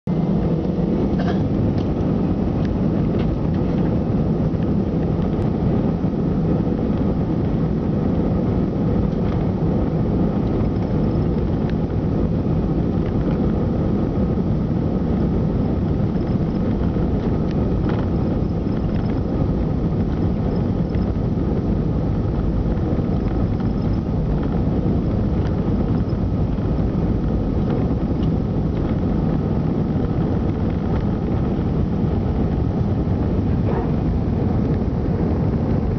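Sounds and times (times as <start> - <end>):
faint steady whine: 0.1 - 35.9
jet engines rumbling: 0.1 - 35.9.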